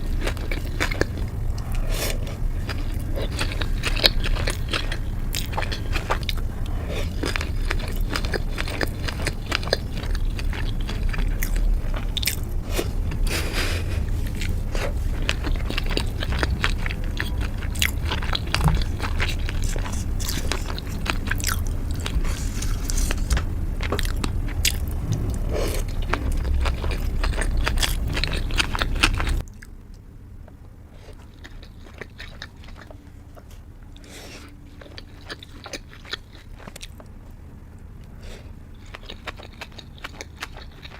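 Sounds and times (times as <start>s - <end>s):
low rumble: 0.0s - 35.4s
biting and chewing food: 0.0s - 40.9s.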